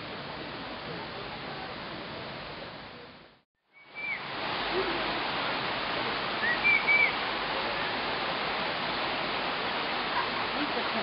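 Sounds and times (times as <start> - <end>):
high bird chirps: 3.8 - 4.2, 6.4 - 7.2
steady rushing noise: 4.0 - 11.0.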